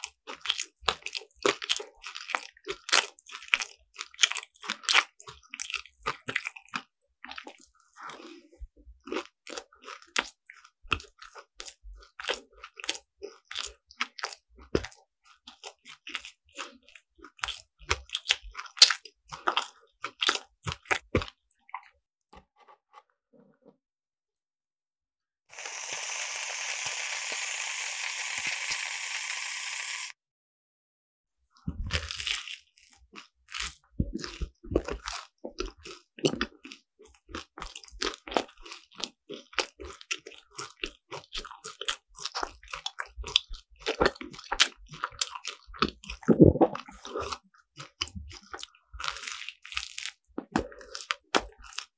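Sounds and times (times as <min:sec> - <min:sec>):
crisp pastry crunching while chewed: 0:00.0 - 0:22.0, 0:31.6 - 0:51.9
steady hiss: 0:25.6 - 0:30.0.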